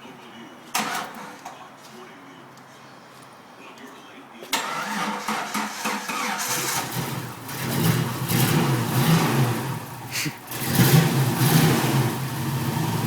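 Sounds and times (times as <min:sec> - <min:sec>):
engine cranking and revving: 0:04.6 - 0:13.0.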